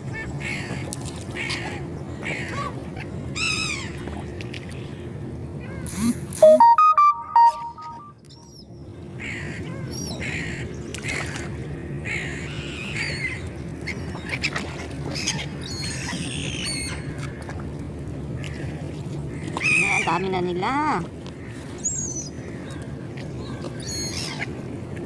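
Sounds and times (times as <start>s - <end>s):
seagulls calling: 19.3s - 20.3s, 21.4s - 24.6s.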